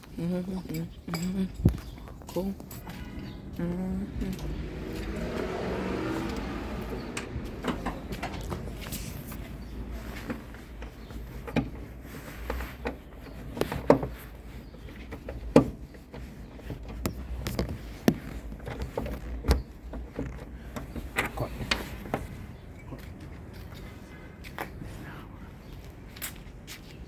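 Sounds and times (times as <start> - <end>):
steady low rumble: 0.0 - 12.0
tools and parts clanking: 0.6 - 3.6, 4.2 - 23.7.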